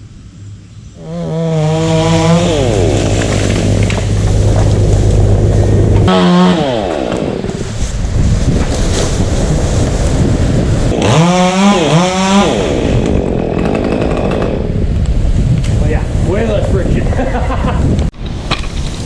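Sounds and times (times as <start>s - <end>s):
chainsaw revving: 1.0s - 7.8s, 10.9s - 14.9s.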